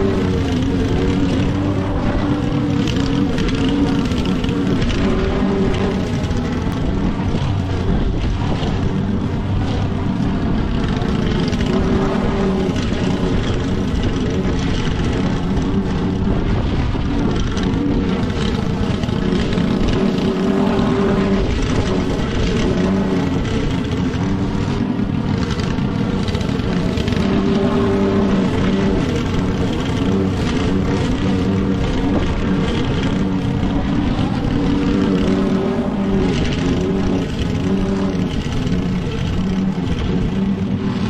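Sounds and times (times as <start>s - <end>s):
lawn mower engine running: 0.0s - 41.0s.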